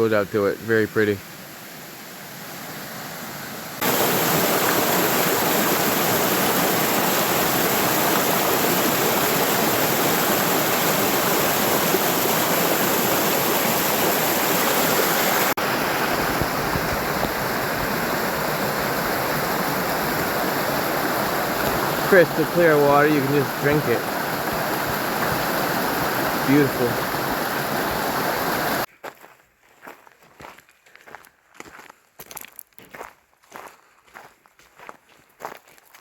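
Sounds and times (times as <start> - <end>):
waterfall rushing: 1.7 - 28.9.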